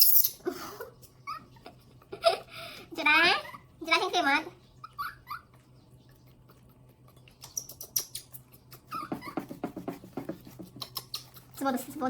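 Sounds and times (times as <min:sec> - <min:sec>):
monkeys squeaking and clicking: 0:00.0 - 0:00.4, 0:04.8 - 0:09.8, 0:10.6 - 0:11.8.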